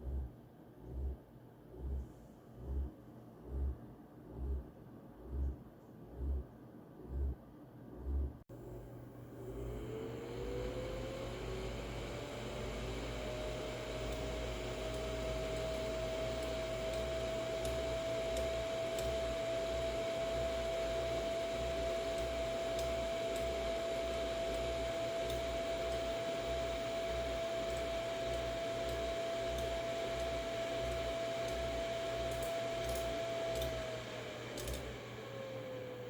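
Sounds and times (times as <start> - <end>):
graphics card whine: 9.4 - 36.0
faint irregular clicks: 14.0 - 19.2, 21.7 - 35.0.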